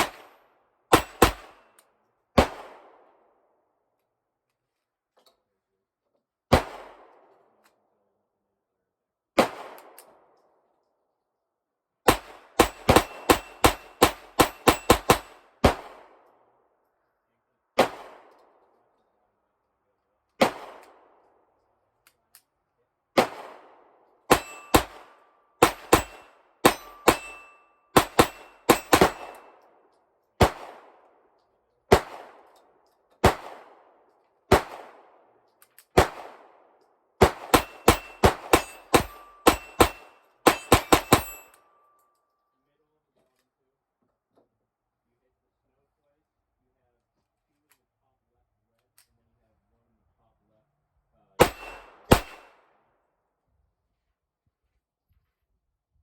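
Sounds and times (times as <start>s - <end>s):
bullets clanging on steel plates: 0.9s - 1.6s, 12.6s - 15.4s, 24.3s - 29.7s, 37.4s - 42.0s, 51.4s - 52.5s
pistol shots: 0.9s - 1.6s, 2.4s - 3.1s, 6.5s - 7.3s, 9.4s - 10.2s, 12.1s - 16.2s, 17.8s - 18.4s, 20.4s - 21.2s, 23.2s - 29.6s, 30.4s - 31.0s, 31.9s - 32.5s, 33.2s - 35.2s, 36.0s - 41.6s, 51.4s - 52.7s.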